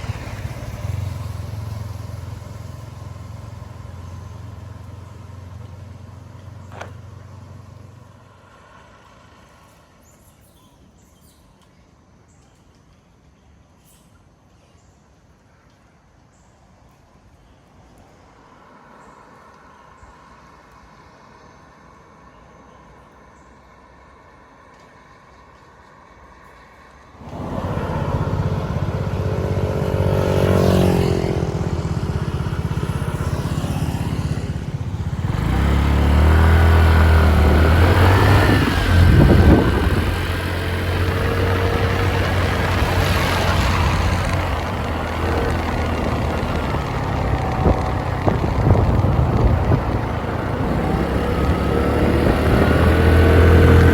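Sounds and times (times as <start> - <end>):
motorbike engine revving: 0.0 - 7.5, 27.2 - 53.9
wind and road noise: 0.0 - 13.5, 15.5 - 53.9.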